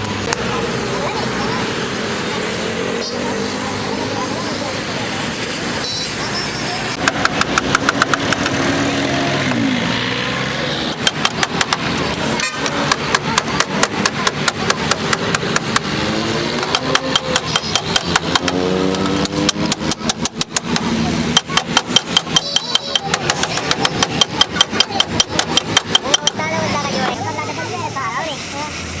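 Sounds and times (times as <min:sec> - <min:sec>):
small engine knocking: 0:06.9 - 0:08.8, 0:10.8 - 0:26.5.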